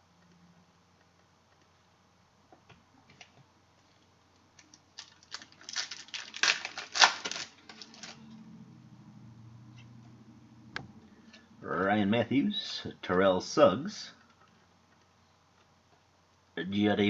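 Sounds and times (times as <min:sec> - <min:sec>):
card pack wrapper tearing: 0:04.6 - 0:08.2.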